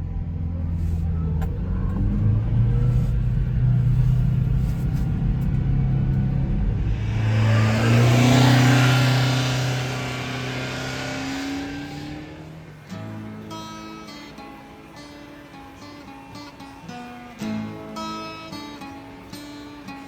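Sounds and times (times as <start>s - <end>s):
small truck engine accelerating: 0.0s - 19.8s.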